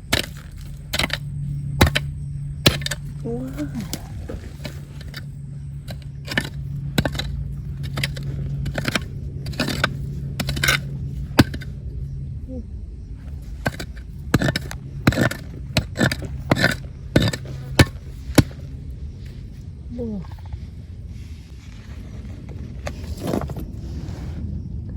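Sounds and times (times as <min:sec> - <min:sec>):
hand tool digging gravel: 0:00.0 - 0:11.8, 0:13.3 - 0:18.7
low hum: 0:00.0 - 0:24.9.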